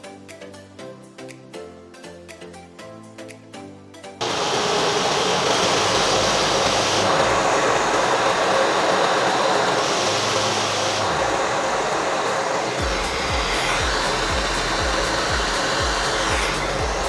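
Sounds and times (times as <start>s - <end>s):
vacuum cleaner running: 4.2s - 17.0s.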